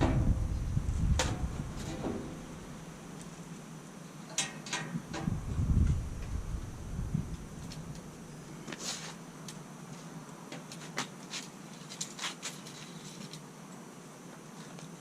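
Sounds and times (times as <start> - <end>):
steady low hum: 0.0 - 4.4, 5.0 - 10.3.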